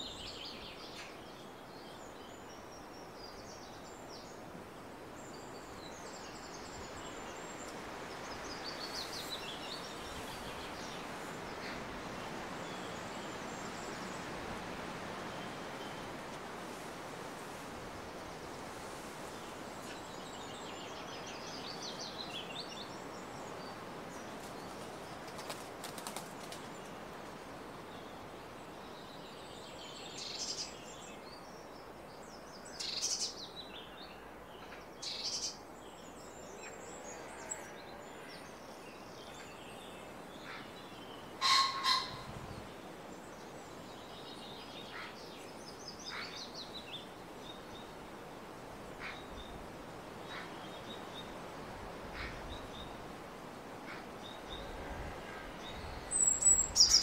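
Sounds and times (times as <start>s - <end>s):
steady background hiss: 0.0s - 57.0s
small birds chirping: 55.6s - 57.0s.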